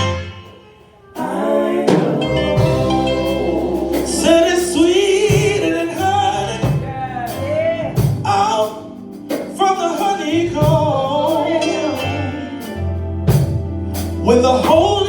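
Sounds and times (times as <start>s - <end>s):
gospel band playing: 0.0s - 15.0s
person singing long notes: 1.0s - 8.7s.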